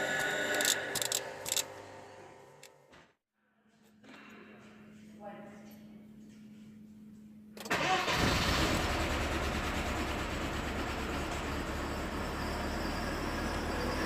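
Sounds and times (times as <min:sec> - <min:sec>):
petrol engine starting and running: 0:00.0 - 0:02.8, 0:07.6 - 0:14.0.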